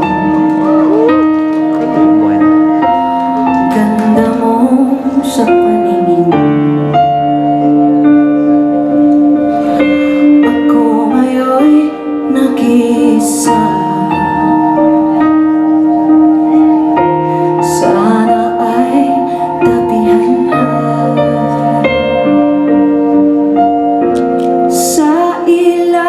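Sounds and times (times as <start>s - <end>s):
keyboard chords: 0.0s - 26.0s
woman singing: 3.5s - 6.8s, 10.3s - 15.3s, 17.5s - 22.9s, 24.7s - 26.0s.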